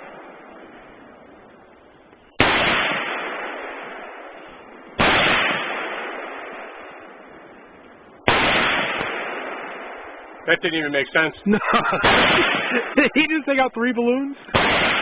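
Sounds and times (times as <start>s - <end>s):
rifle shots: 0.0s - 13.2s, 14.5s - 15.0s.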